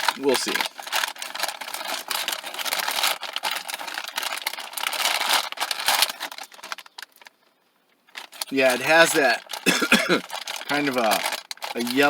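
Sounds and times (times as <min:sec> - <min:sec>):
plastic packaging crinkling: 0:00.0 - 0:07.4, 0:08.1 - 0:12.0.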